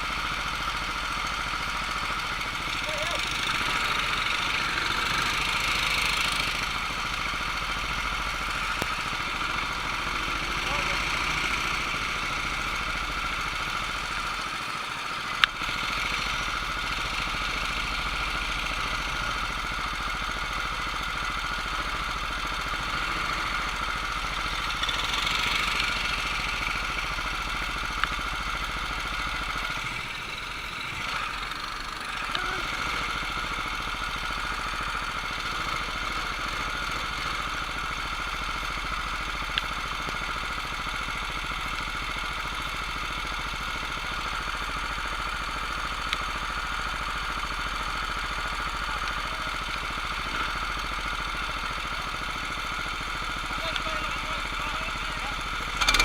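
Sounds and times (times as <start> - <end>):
mechanical engine drone: 0.0 - 56.0
sharp clicks: 55.8 - 56.0.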